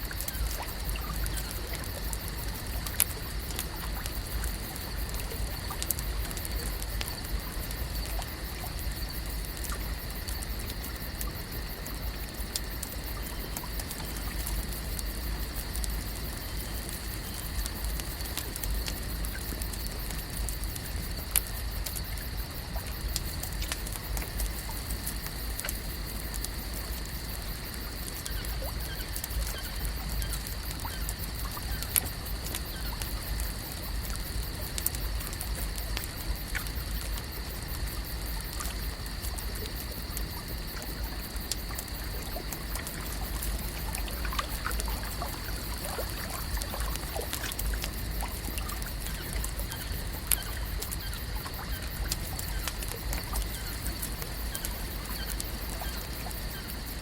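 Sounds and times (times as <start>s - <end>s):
small ticks and crackles: 0.0s - 57.0s
water trickling and lapping: 0.0s - 57.0s
faint chirps: 28.2s - 32.0s.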